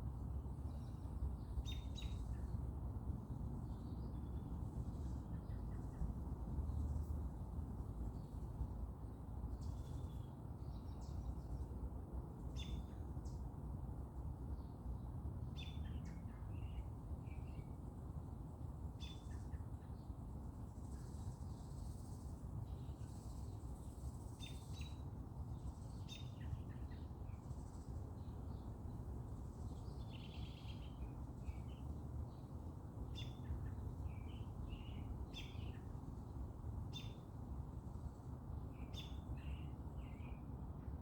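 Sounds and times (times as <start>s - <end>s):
small birds chirping: 20.8s - 37.3s.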